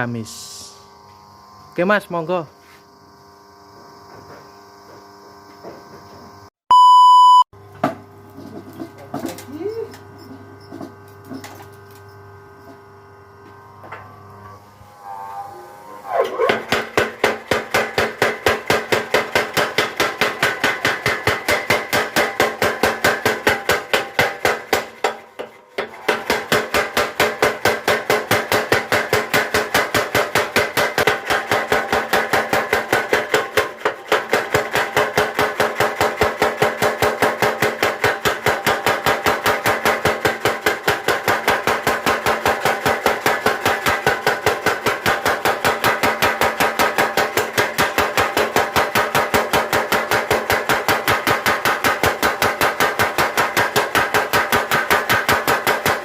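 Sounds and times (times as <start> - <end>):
machine hum: 0.0 - 6.5, 7.6 - 21.5
power hammer pounding steel: 15.8 - 56.0.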